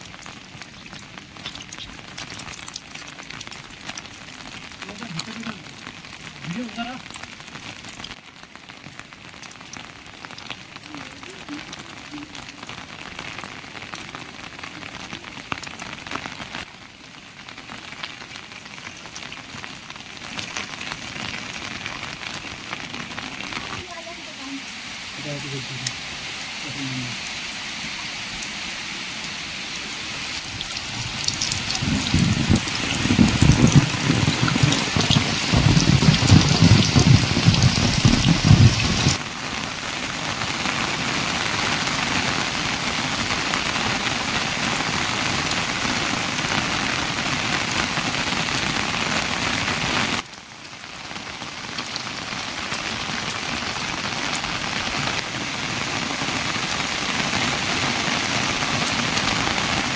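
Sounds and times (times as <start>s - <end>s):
heavy rain falling: 0.0s - 59.9s
uneven low rumble: 30.6s - 39.2s.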